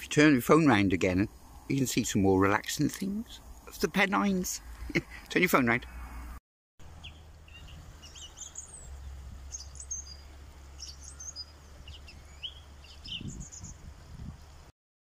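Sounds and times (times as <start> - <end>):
small birds chirping: 6.8 - 14.6.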